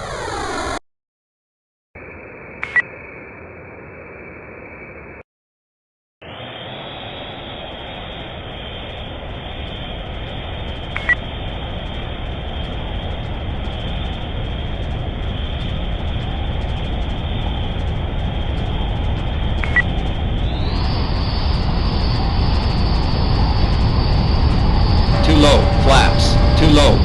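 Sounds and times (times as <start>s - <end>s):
rumbling engine-like noise: 6.2s - 27.0s.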